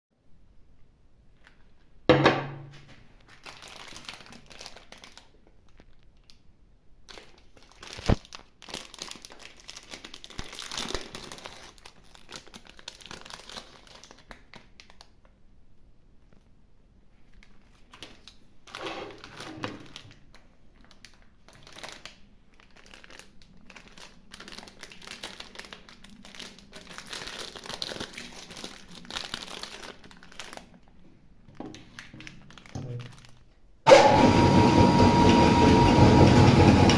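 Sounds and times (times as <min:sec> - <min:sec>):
plastic wrapper crinkling and tearing: 0:02.8 - 0:15.4, 0:17.1 - 0:33.7.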